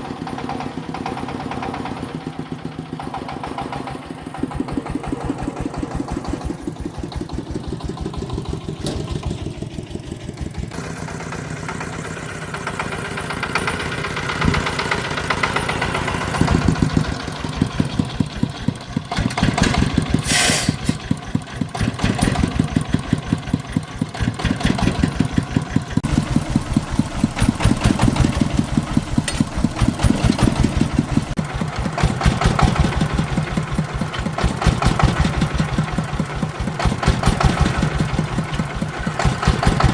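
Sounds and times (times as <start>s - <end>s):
engine thumping: 0.0s - 39.9s
short hiss: 20.2s - 21.0s.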